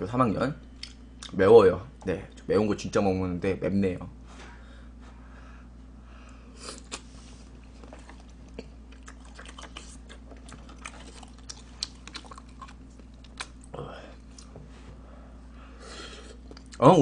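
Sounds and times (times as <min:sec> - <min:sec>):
low electrical hum: 0:00.0 - 0:17.0
person chewing: 0:00.7 - 0:01.4, 0:06.6 - 0:14.5, 0:16.2 - 0:16.8.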